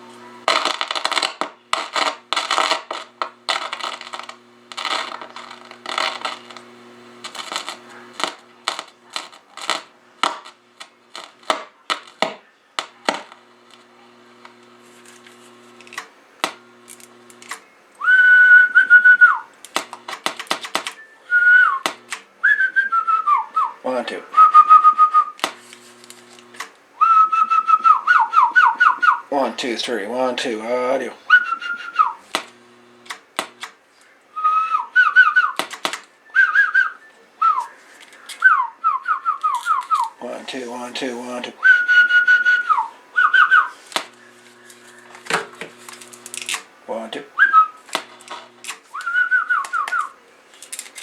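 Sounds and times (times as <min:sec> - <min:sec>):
low steady hum: 0:00.0 - 0:20.4
clicking and crackling: 0:00.0 - 0:22.3, 0:24.5 - 0:30.0, 0:31.3 - 0:34.2, 0:35.2 - 0:36.1, 0:39.3 - 0:51.0
person whistling into a microphone: 0:18.0 - 0:19.5, 0:21.0 - 0:21.8, 0:22.4 - 0:23.8, 0:24.4 - 0:25.4, 0:27.0 - 0:29.2, 0:31.3 - 0:32.2, 0:34.4 - 0:35.6, 0:36.2 - 0:40.1, 0:41.6 - 0:45.1, 0:47.4 - 0:47.8, 0:48.9 - 0:50.1.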